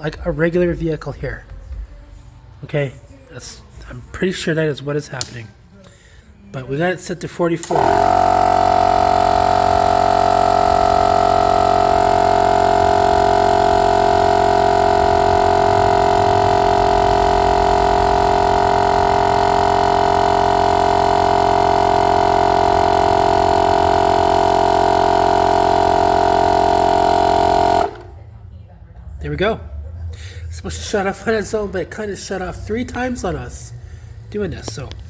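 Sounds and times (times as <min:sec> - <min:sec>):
air compressor humming: 0:05.2 - 0:28.4.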